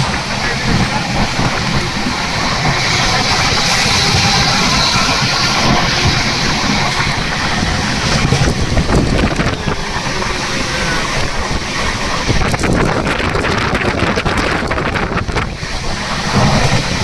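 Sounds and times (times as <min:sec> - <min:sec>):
moving train rumble: 0:00.0 - 0:17.0
wind buffeting microphone: 0:00.0 - 0:17.0.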